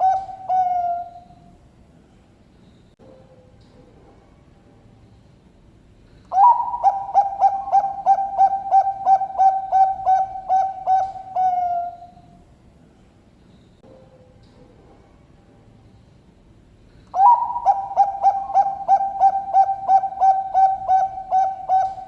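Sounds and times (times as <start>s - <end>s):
dove cooing: 0.0s - 1.5s, 6.3s - 12.4s, 17.1s - 22.0s.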